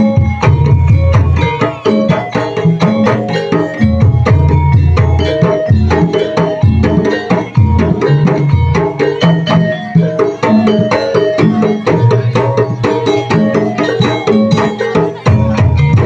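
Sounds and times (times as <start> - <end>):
hand drums: 0.0 - 16.0
tuned struck percussion: 0.0 - 16.0.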